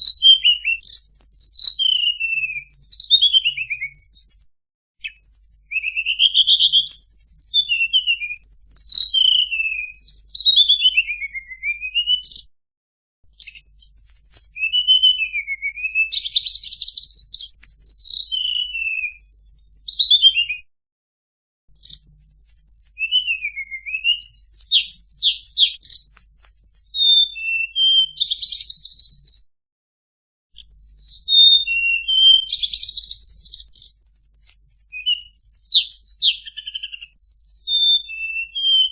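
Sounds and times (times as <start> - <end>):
bird singing whistled notes: 0.0 - 12.5, 13.3 - 20.7, 21.8 - 29.5, 30.6 - 38.9.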